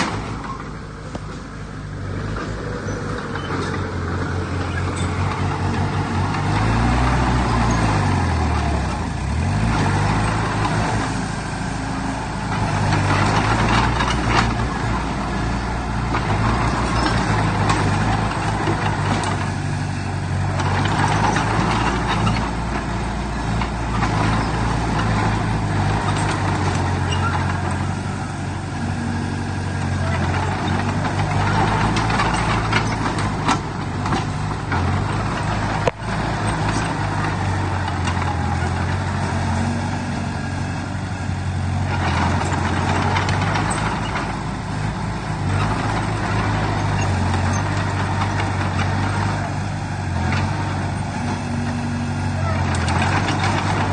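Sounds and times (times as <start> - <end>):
heavy diesel engine under load: 0.0 - 53.9.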